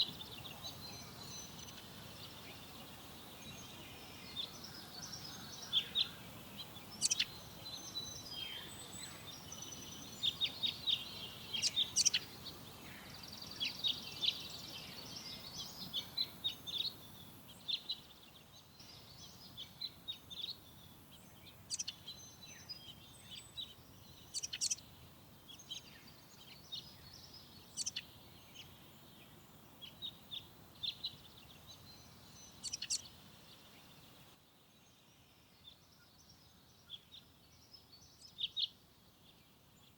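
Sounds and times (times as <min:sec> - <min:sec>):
birds chirping: 0:00.0 - 0:39.9
soft background hiss: 0:00.0 - 0:39.9
bird trill: 0:06.8 - 0:17.1, 0:24.2 - 0:24.8, 0:31.9 - 0:33.1.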